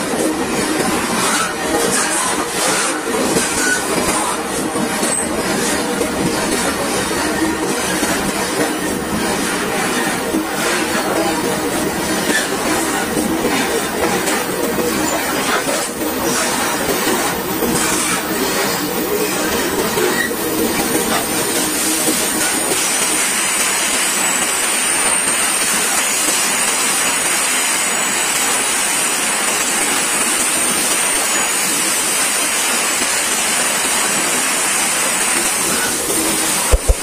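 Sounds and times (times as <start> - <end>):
steel wheels rumbling on rails: 0.0 - 37.0
high wheel squeal: 1.2 - 4.4, 17.6 - 21.2.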